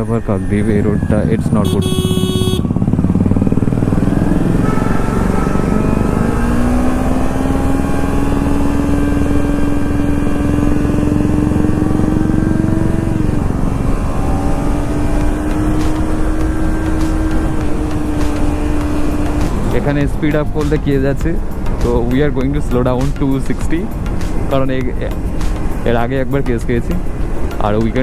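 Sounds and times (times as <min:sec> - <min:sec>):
brief high tone: 0:00.0 - 0:02.9
motorcycle engine running: 0:00.8 - 0:28.0.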